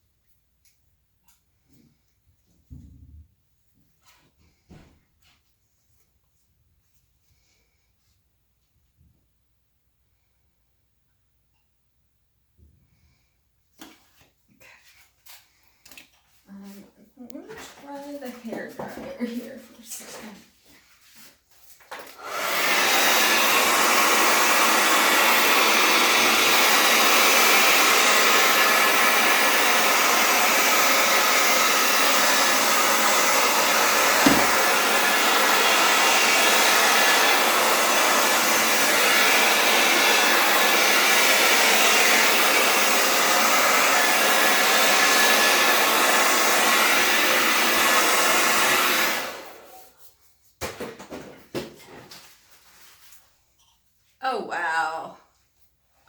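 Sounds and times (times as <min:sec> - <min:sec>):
hair dryer running: 0:21.9 - 0:49.9.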